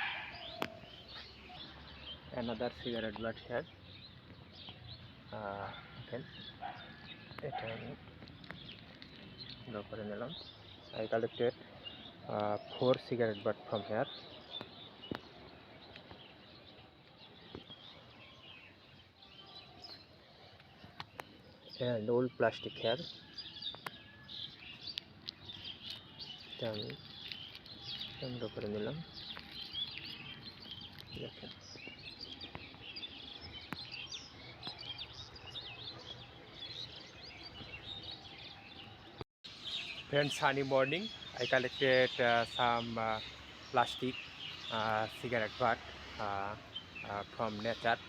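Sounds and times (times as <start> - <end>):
small birds chirping: 0.0 - 48.0
faint outdoor hiss: 39.5 - 48.0.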